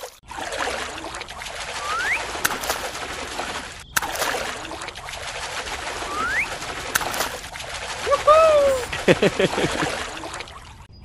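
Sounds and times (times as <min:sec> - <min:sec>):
running water rushing: 0:00.0 - 0:10.9
rising bird whistle: 0:01.8 - 0:02.4, 0:06.0 - 0:06.6.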